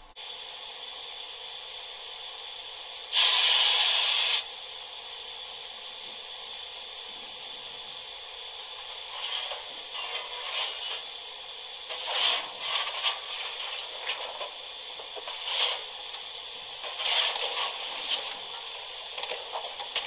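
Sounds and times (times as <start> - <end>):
steady steam hiss: 0.0 - 20.0
loud steam blast: 3.1 - 4.6, 7.6 - 20.0.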